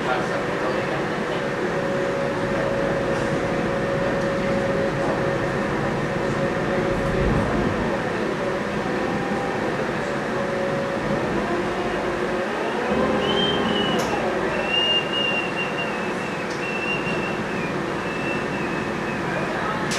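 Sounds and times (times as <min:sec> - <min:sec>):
boat engine rumbling: 0:00.0 - 0:19.9
held hum: 0:01.8 - 0:19.8.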